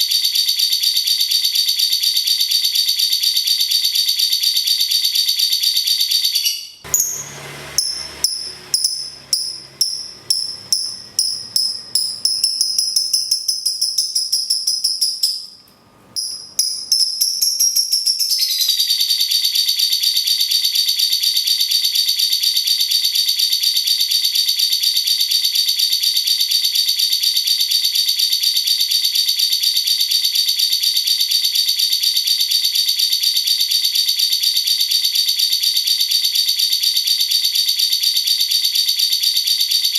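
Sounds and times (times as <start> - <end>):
lovebird rattling trill: 7.8 - 15.6, 16.2 - 19.2.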